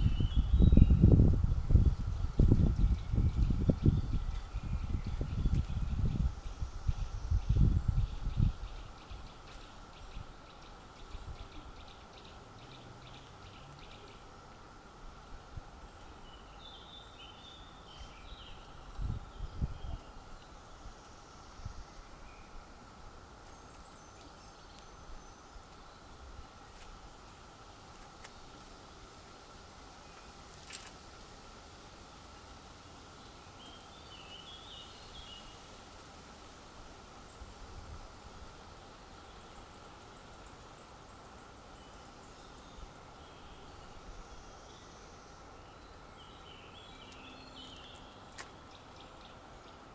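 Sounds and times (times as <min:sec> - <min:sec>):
wind rumbling on microphone: 0:00.0 - 0:11.9, 0:15.0 - 0:23.2, 0:34.0 - 0:39.8
faint outdoor background noise: 0:00.0 - 0:49.9.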